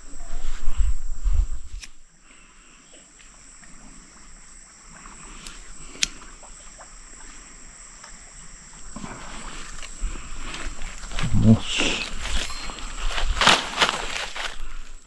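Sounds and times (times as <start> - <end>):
wind rumble on microphone: 0.0 - 2.0, 10.0 - 13.5
crickets droning: 0.0 - 15.0
sharp clicks: 5.4 - 6.3.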